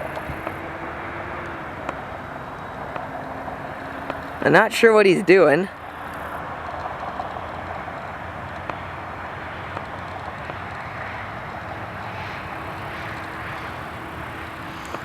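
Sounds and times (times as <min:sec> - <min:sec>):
airliner cabin hum and hiss: 0:00.0 - 0:15.0.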